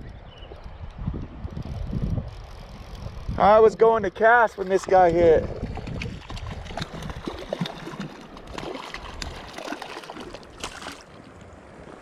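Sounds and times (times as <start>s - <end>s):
wind rumble on microphone: 0.0s - 9.6s
river water running: 4.2s - 12.0s
small splashes and clicks: 4.5s - 11.5s.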